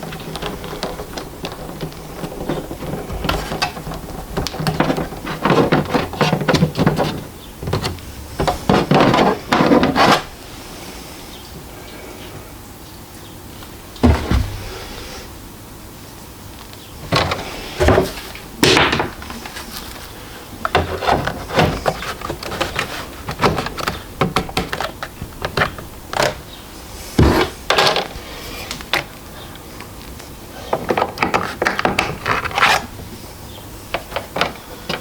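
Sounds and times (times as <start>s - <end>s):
printer handling thuds: 14.0s - 14.8s.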